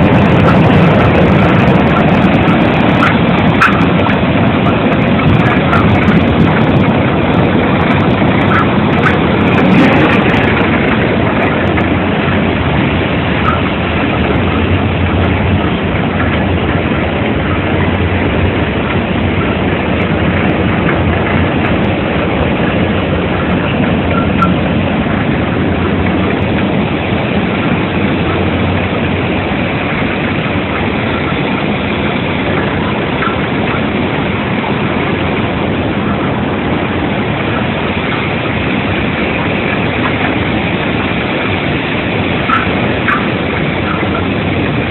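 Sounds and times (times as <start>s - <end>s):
machinery running with low hum: 0.0s - 44.9s.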